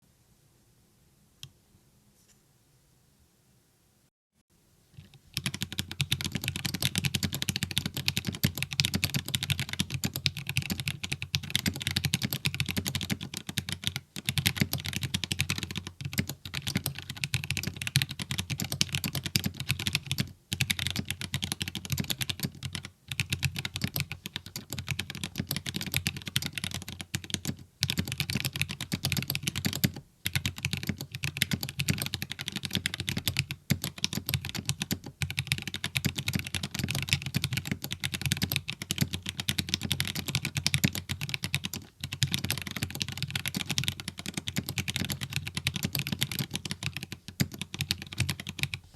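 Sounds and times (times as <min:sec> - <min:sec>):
fast mechanical keyboard typing: 0:05.0 - 0:48.8.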